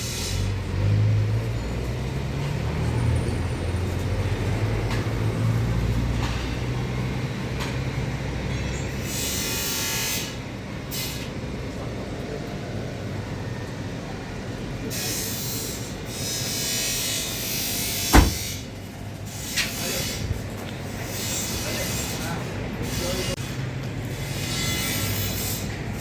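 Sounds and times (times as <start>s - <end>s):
heavy vehicle engine rumbling: 17.9s - 19.2s.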